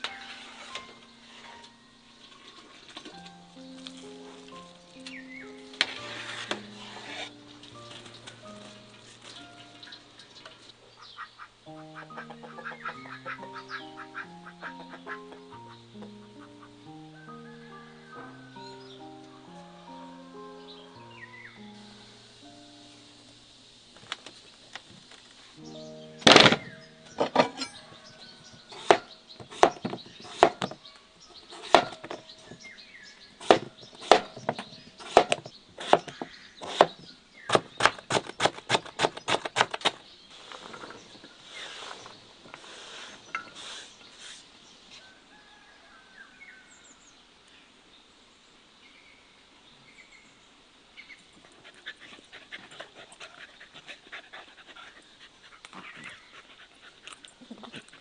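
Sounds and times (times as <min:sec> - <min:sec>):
sharp knocks: 0:28.8 - 0:30.8, 0:31.6 - 0:32.2, 0:33.4 - 0:40.0.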